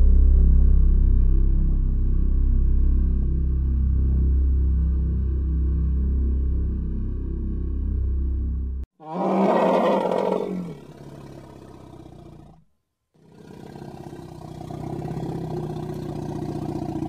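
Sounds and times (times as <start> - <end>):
elephant calling: 9.0 - 12.6, 13.2 - 17.0.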